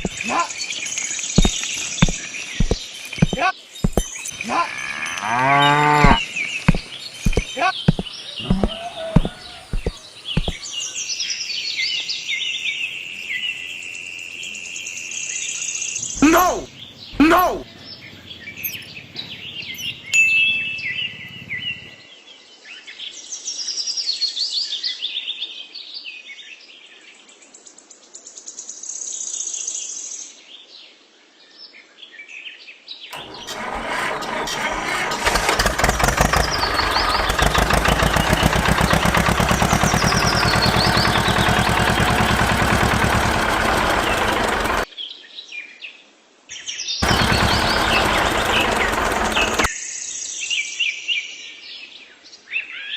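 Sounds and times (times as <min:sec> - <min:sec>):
small birds chirping: 0:00.0 - 0:22.1, 0:35.5 - 0:44.9, 0:47.0 - 0:50.3
loud steady machine noise: 0:01.4 - 0:04.1, 0:06.0 - 0:10.6, 0:33.2 - 0:44.9, 0:47.0 - 0:49.7.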